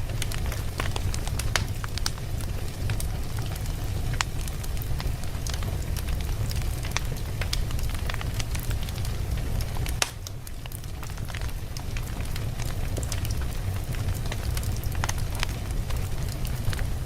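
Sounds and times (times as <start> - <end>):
fire crackling and popping: 0.0 - 17.0
fire rumbling: 0.0 - 17.0.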